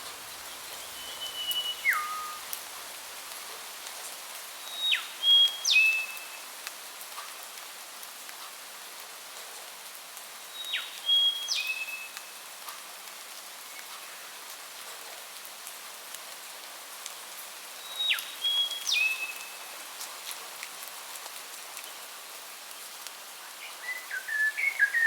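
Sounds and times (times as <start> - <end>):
rain hissing: 0.0 - 25.0
songbird whistling: 0.8 - 2.4, 4.6 - 6.3, 23.8 - 25.0.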